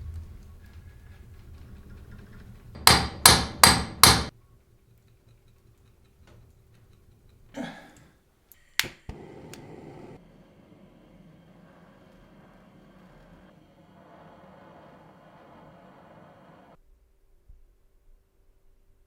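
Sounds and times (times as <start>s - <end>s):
hammer striking metal: 2.8s - 4.3s.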